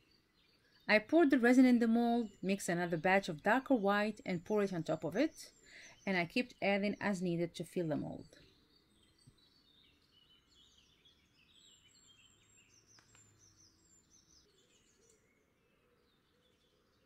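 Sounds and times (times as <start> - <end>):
faint bird chirps: 4.1 - 17.0.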